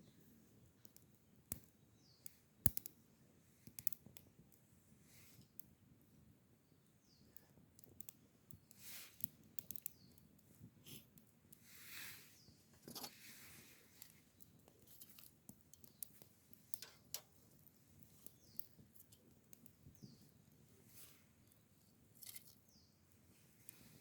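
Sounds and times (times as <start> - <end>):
wood fire crackling and popping: 0.6 - 3.0, 3.6 - 6.1, 7.2 - 11.8, 13.6 - 22.8
faint bird chirps: 1.9 - 2.4, 6.6 - 7.6, 9.7 - 10.2, 18.2 - 18.8
fire hissing: 10.9 - 12.5.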